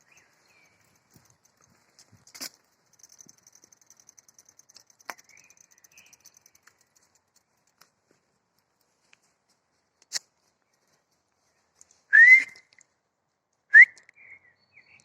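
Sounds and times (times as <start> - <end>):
bicycle freewheel ticking: 0.0 - 8.9.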